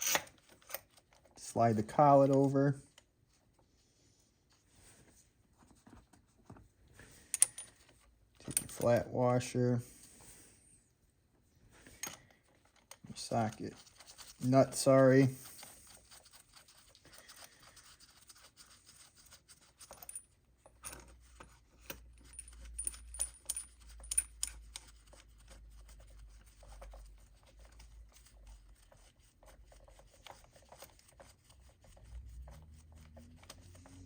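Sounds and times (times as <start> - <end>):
metal tool scraping and clicking: 0.0 - 0.8.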